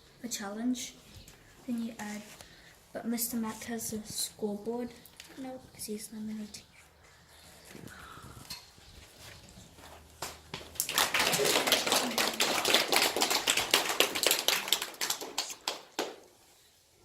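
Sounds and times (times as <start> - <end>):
small group clapping: 10.2 - 16.4.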